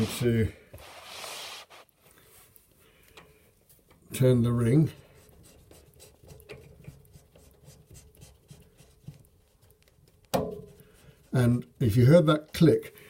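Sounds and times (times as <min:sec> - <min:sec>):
plastic ring scratchy rubbing: 0:04.8 - 0:10.2.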